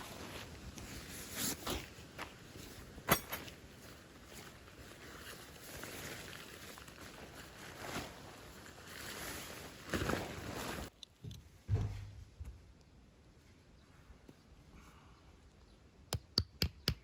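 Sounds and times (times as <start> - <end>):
rustling and handling noises: 0.0 - 12.6
low thud: 11.6 - 12.6.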